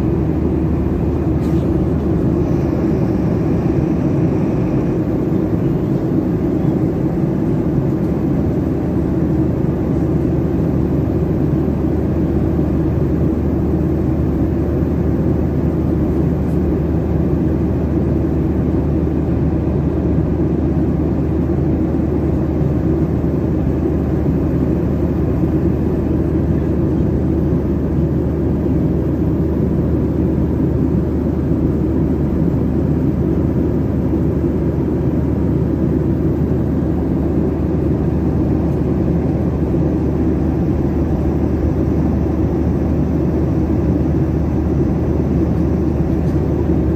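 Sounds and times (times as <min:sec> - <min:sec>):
low hum: 0:00.0 - 0:06.8
jet engine rumble: 0:00.0 - 0:46.9.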